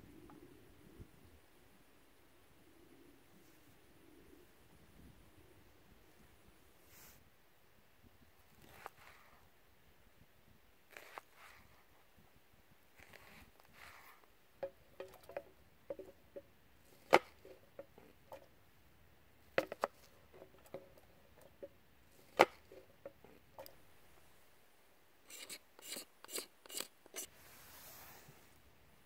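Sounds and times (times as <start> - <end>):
soft rustle: 2.9 - 4.6, 5.9 - 7.4, 8.4 - 9.6, 10.9 - 14.4, 25.3 - 29.0.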